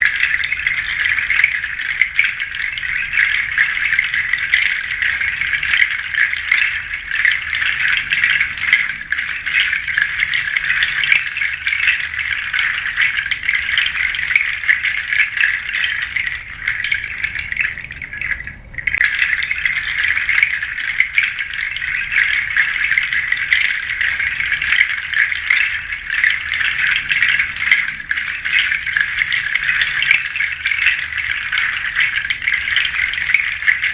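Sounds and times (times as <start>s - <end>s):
seed shaker rattling: 0.0s - 33.9s.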